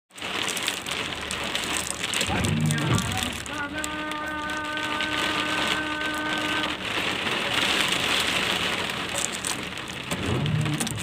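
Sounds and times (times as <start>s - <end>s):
rain falling steadily: 0.1s - 11.0s.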